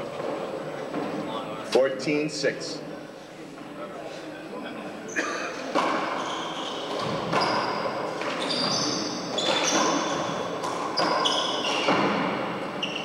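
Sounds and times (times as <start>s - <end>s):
sneakers squeaking on court: 5.8s - 13.0s.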